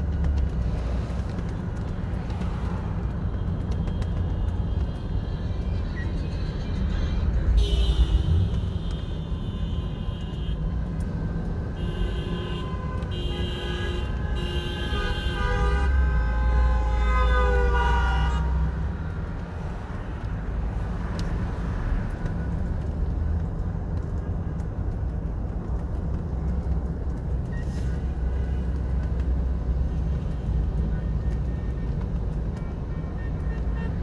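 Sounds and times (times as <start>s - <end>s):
car and truck engines rumbling: 0.0s - 34.0s
vehicle horns honking: 11.8s - 18.8s.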